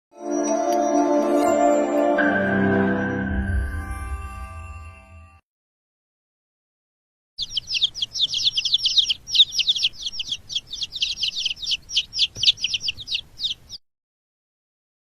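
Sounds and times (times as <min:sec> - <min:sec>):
birds chirping: 0:07.4 - 0:13.8.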